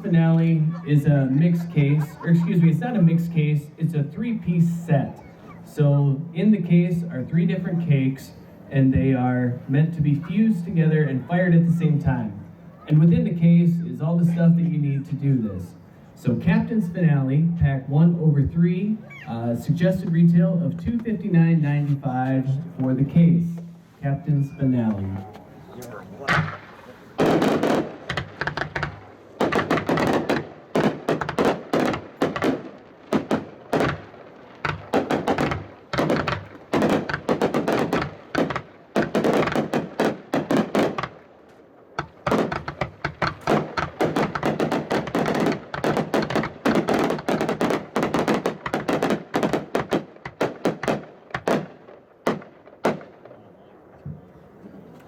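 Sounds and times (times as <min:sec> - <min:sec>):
fireworks firing in volleys: 0:26.2 - 0:53.5.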